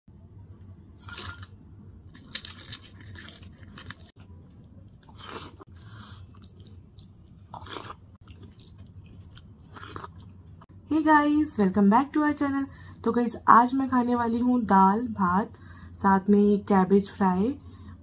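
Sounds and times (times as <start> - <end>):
person chewing and crunching food: 1.0 - 10.7.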